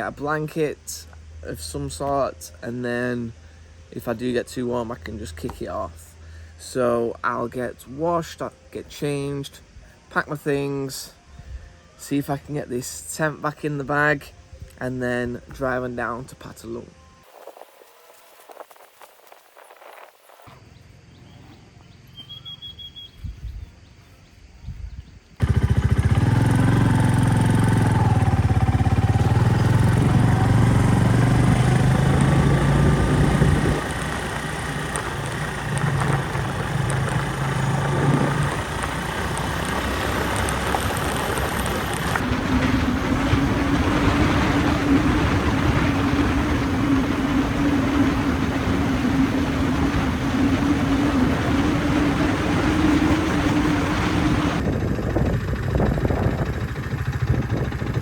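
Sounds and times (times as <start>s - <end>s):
wind noise: 17.2s - 20.6s, 23.1s - 23.8s, 24.4s - 58.0s
motorbike engine running: 25.4s - 58.0s.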